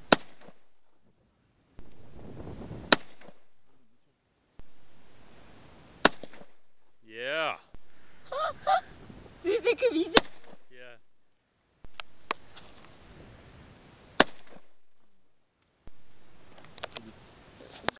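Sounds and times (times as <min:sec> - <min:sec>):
rifle shots: 0:00.0 - 0:00.7, 0:02.8 - 0:03.7, 0:06.0 - 0:06.8, 0:10.0 - 0:10.7, 0:14.2 - 0:15.2
person speaking: 0:07.0 - 0:07.7, 0:09.4 - 0:11.0.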